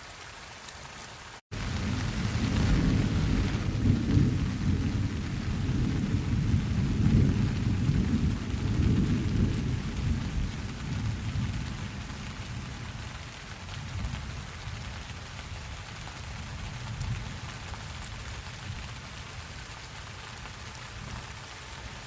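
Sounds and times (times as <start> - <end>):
steady rain: 0.0 - 22.0
rolling thunder: 1.5 - 13.0.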